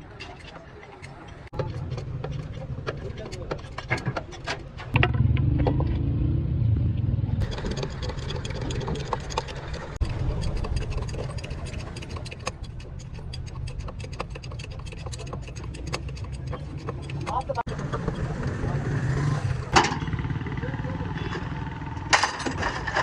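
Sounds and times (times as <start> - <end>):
engine running: 5.0 - 11.9
metallic clicks and rattles: 7.4 - 17.7.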